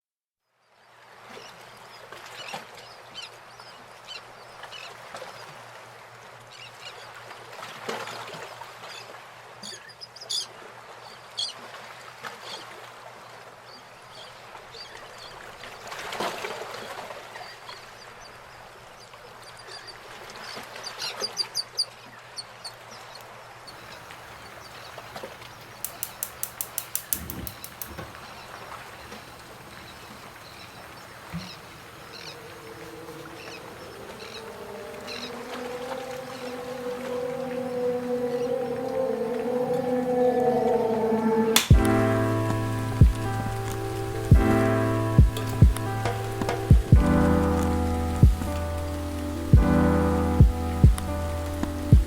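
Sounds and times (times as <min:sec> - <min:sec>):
birds calling: 0:23.7 - 0:52.0
clicks and knocks: 0:25.8 - 0:28.3.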